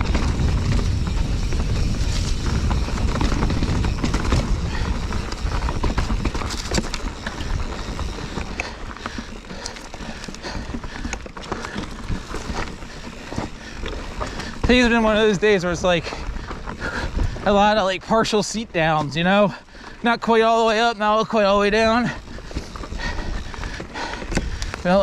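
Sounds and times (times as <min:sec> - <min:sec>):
heavy low rumble: 0:00.0 - 0:08.4
bike clicks and rattles: 0:00.0 - 0:25.0
tyres crunching on rock: 0:00.0 - 0:25.0.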